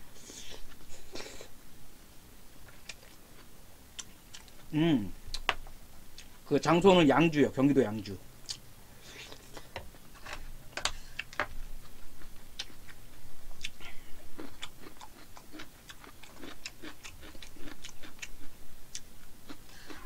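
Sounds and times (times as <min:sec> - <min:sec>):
person chewing food: 0:02.6 - 0:04.7, 0:05.3 - 0:06.4, 0:08.4 - 0:20.0.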